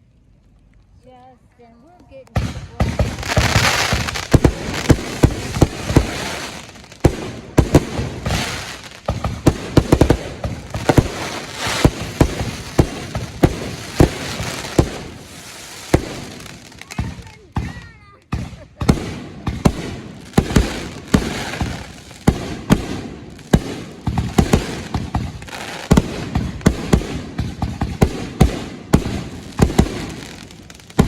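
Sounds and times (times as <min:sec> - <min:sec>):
fireworks bangs: 0:02.2 - 0:31.0
fireworks hiss: 0:02.4 - 0:31.0.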